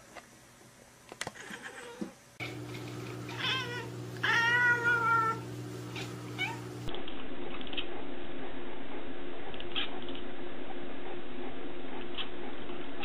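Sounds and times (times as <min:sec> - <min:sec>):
cat meowing: 0:03.3 - 0:05.4, 0:06.0 - 0:06.7
low hum: 0:05.2 - 0:13.0.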